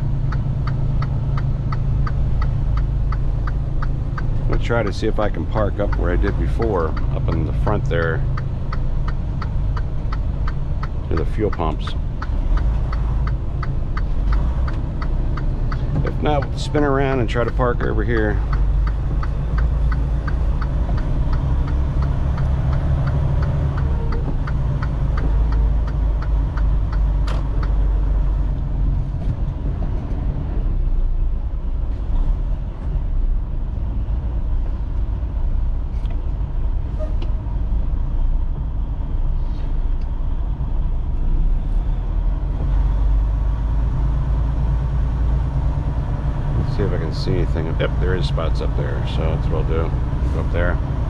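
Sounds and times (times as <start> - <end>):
turn signal clicking: 0.0 - 28.6
diesel truck engine running: 0.0 - 51.0.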